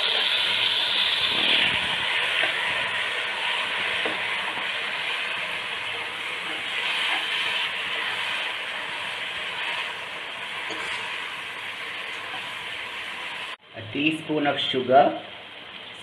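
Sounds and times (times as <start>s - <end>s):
masala sizzling in a pot: 0.0s - 16.0s.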